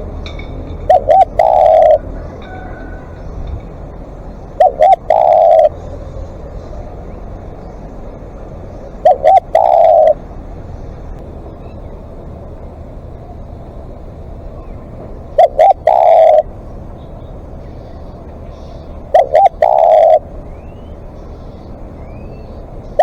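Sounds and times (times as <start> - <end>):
dove cooing: 0.0 - 11.0, 14.5 - 17.2, 17.9 - 21.3, 22.1 - 23.0.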